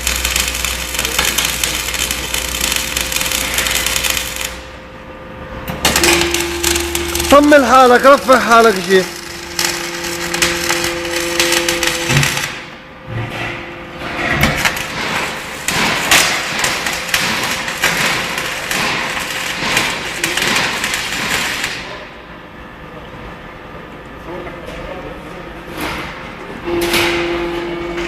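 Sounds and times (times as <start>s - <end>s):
electric arc welding crackle: 0.0s - 4.8s, 5.8s - 12.8s, 14.4s - 22.1s.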